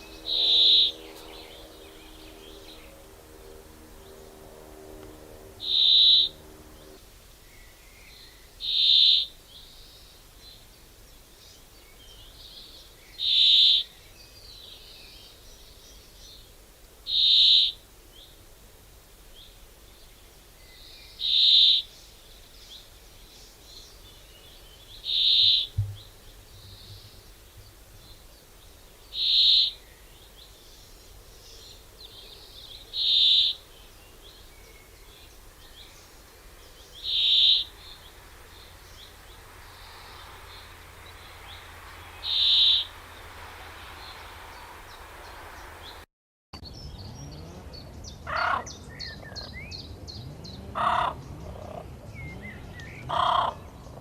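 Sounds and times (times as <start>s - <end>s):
bird high call: 0.0s - 3.0s, 4.9s - 6.9s, 8.6s - 9.4s, 13.2s - 13.9s, 17.1s - 17.8s, 25.0s - 26.1s, 29.1s - 29.8s, 32.9s - 33.7s, 37.0s - 38.1s, 41.5s - 43.0s.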